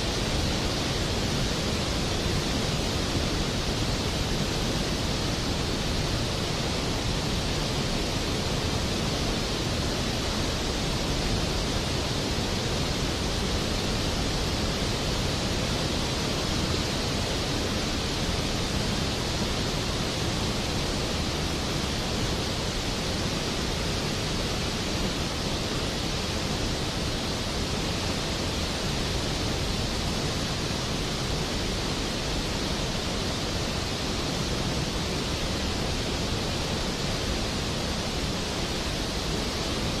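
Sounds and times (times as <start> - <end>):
steady rain hiss: 0.0 - 40.0.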